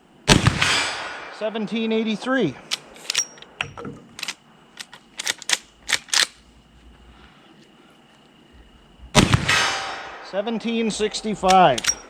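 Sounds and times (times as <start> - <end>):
loud rifle shot: 0.3 - 1.9, 9.2 - 10.4
rifle lever clicks: 2.6 - 6.4, 11.5 - 12.0.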